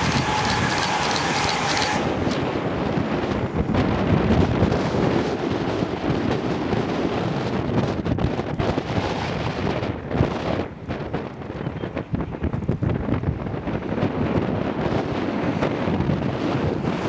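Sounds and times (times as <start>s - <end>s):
train passing with rushing hiss: 0.0s - 5.6s
train steady whine: 0.0s - 7.6s
wind buffeting microphone: 0.0s - 17.0s.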